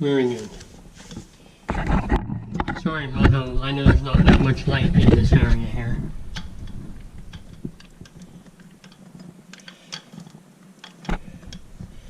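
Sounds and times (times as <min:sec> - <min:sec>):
plumbing fittings clicking: 0:06.3 - 0:12.0.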